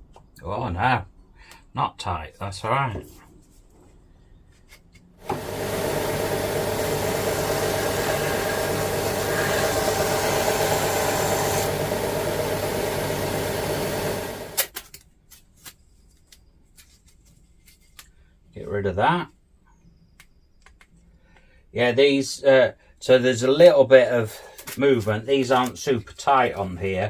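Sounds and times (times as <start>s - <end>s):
electric power tool running: 5.2s - 14.6s.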